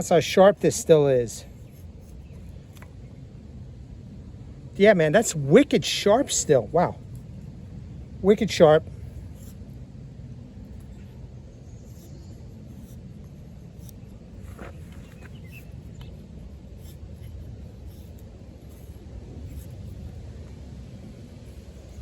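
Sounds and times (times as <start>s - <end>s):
low outdoor rumble: 0.0s - 22.0s
knife scraping wood: 11.8s - 18.9s.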